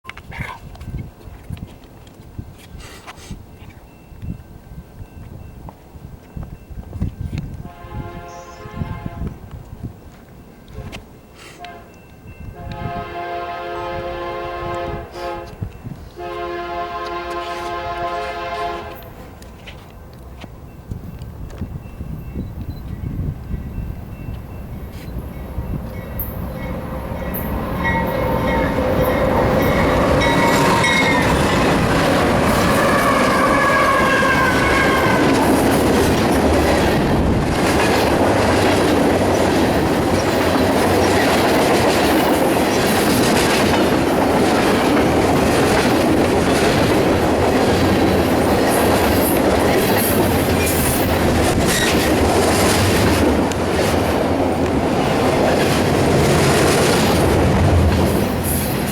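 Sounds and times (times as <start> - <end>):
locomotive tones: 3.4 - 58.9
railcars rumbling past: 3.4 - 58.9
wheels clattering over rail joints: 24.1 - 58.9.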